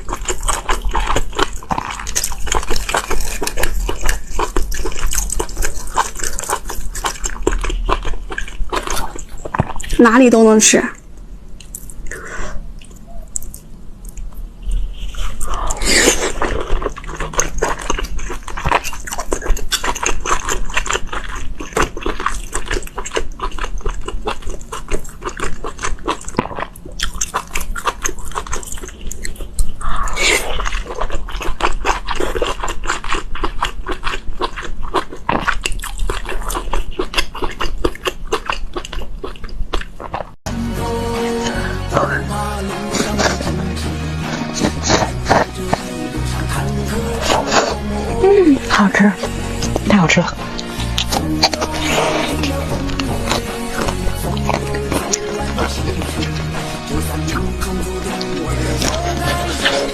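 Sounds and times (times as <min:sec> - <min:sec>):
close chewing and biting: 0:00.0 - 0:59.9
slurps: 0:42.8 - 0:59.9.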